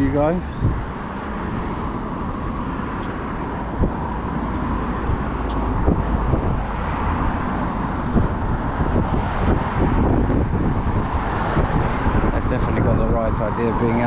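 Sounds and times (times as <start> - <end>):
road traffic passing: 0.0 - 14.0.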